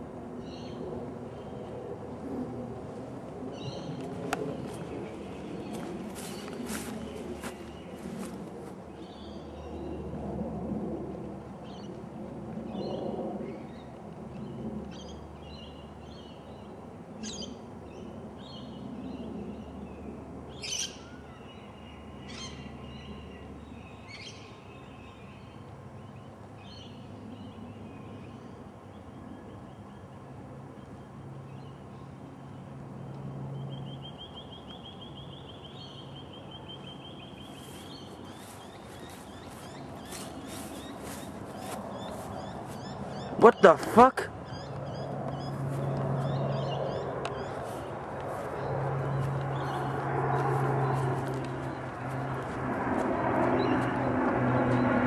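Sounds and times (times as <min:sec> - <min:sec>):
birds chirping and calling: 0:03.6 - 0:08.4, 0:37.4 - 0:52.1.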